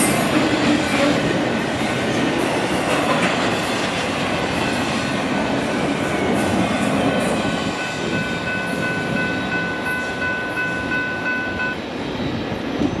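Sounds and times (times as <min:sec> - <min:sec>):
freight train rumbling past: 0:00.0 - 0:13.0
steady high tone: 0:04.6 - 0:11.8.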